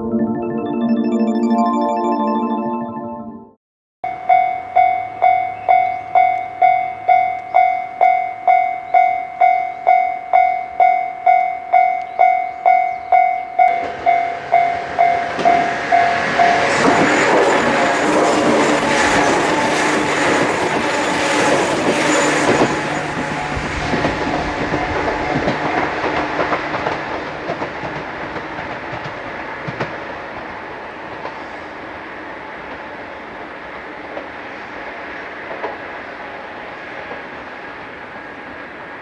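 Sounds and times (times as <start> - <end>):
train wheels clacking on rail joints: 23.8 - 31.5.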